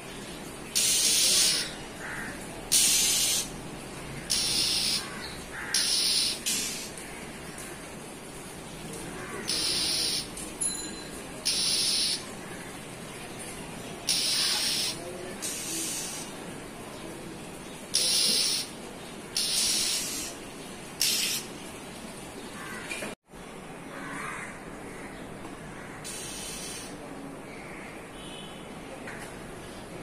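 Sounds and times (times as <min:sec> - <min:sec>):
town noise hum: 0:00.0 - 0:30.0
bird harsh hissing calls: 0:00.7 - 0:03.6, 0:04.2 - 0:07.0, 0:09.2 - 0:10.3, 0:11.4 - 0:12.3, 0:14.0 - 0:16.4, 0:17.9 - 0:20.4, 0:21.0 - 0:21.5, 0:26.0 - 0:27.1.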